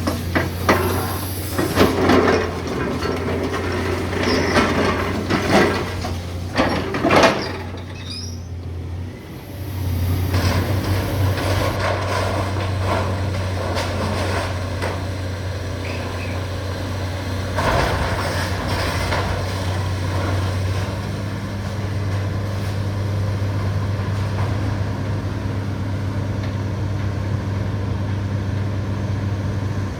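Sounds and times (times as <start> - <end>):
rubble crashing and scraping: 0.0 - 8.5, 9.4 - 15.3
excavator diesel engine running: 0.0 - 29.9.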